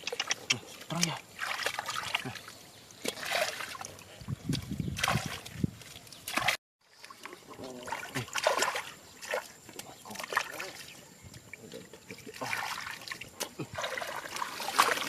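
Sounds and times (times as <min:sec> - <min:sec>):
sharp water splashes: 0:00.0 - 0:11.0, 0:12.1 - 0:15.0
shallow water splashing and trickling: 0:00.0 - 0:15.0.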